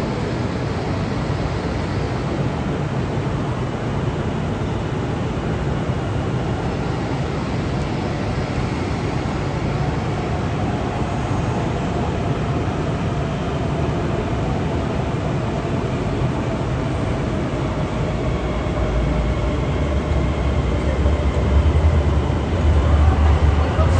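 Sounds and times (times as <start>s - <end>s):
electric train whine: 0.0s - 23.9s
train rumbling: 5.9s - 23.9s.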